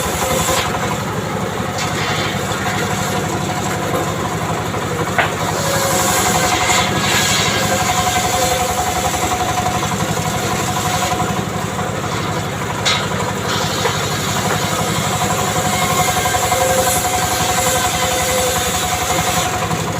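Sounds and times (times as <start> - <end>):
engine idling: 0.0 - 19.9.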